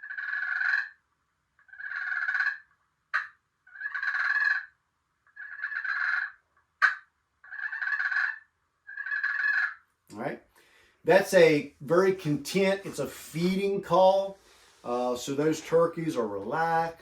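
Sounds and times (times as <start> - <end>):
turkey call purrs: 1.7 - 4.7, 5.3 - 9.8.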